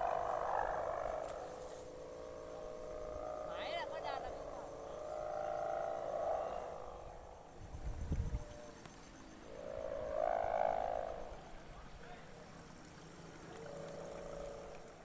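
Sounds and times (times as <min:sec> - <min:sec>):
kite hummer droning: 0:00.0 - 0:15.0.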